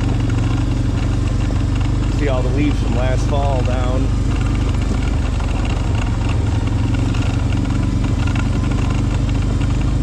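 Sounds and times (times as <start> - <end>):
engine running steadily: 0.0 - 10.0
light rattle: 0.2 - 10.0.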